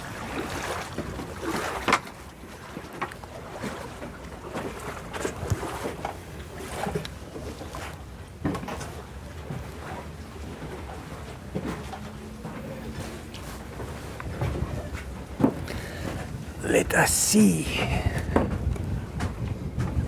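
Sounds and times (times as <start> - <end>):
waves lapping and splashing: 0.0 - 4.0
wind: 0.0 - 20.0.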